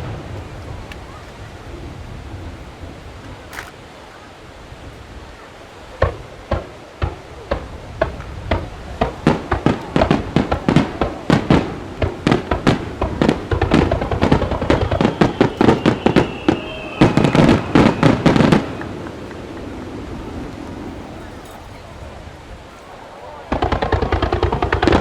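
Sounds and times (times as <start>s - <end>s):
fireworks bursts: 0.0s - 3.8s, 5.8s - 25.0s
fireworks rumble: 0.0s - 25.0s
faint falling whistle: 14.6s - 19.1s.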